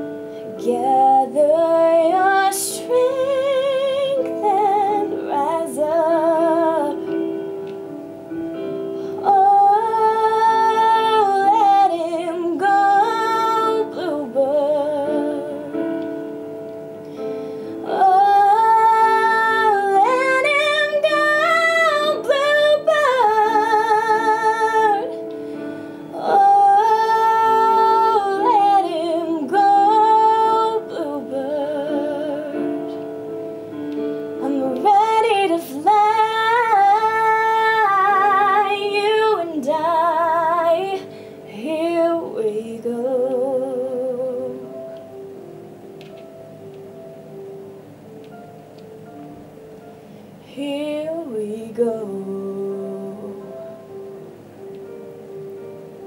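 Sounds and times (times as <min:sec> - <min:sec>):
woman singing: 0:00.0 - 0:07.5, 0:09.2 - 0:16.2, 0:17.7 - 0:25.4, 0:26.1 - 0:33.1, 0:34.4 - 0:44.8, 0:50.4 - 0:54.0
piano chords: 0:00.0 - 0:56.0.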